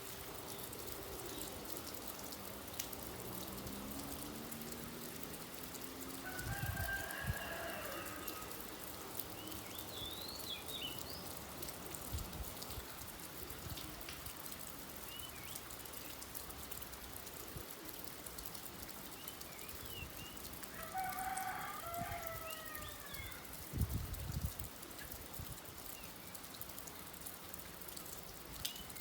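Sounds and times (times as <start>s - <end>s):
rain pattering: 0.0s - 29.0s
rooster crowing: 6.2s - 8.7s, 20.7s - 23.5s
small birds chirping: 9.2s - 11.5s.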